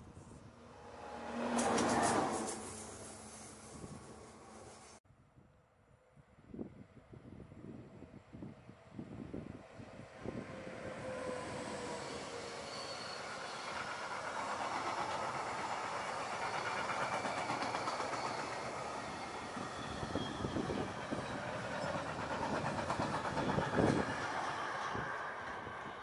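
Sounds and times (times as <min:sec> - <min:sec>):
freight wagons rumbling on rail: 0:00.1 - 0:05.0, 0:10.2 - 0:26.0.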